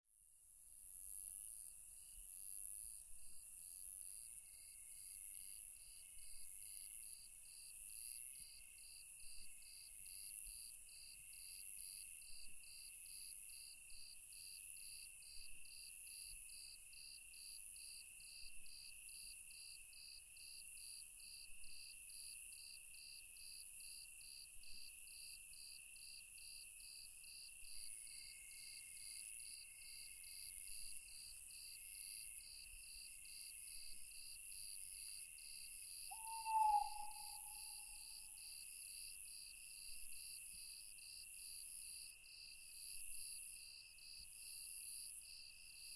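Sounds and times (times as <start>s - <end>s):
crickets and insects chirping: 36.0s - 38.6s
owl hoot: 36.1s - 38.2s.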